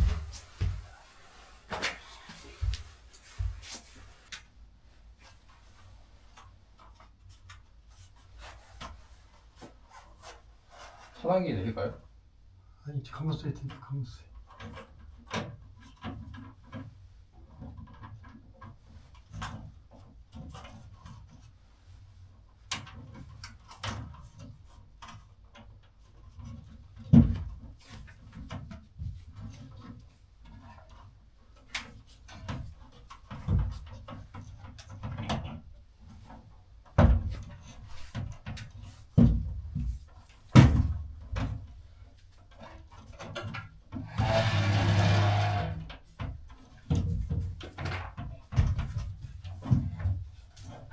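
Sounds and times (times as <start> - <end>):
knocks and clicks of hand work: 31.7 - 41.8.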